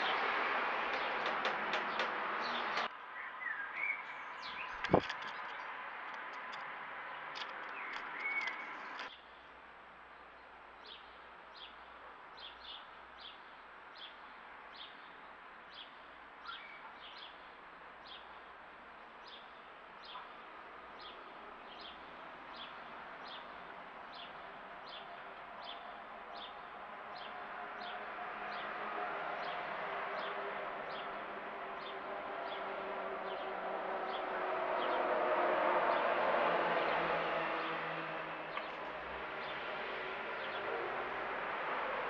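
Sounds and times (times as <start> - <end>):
small bird chirping: 7.4 - 9.2.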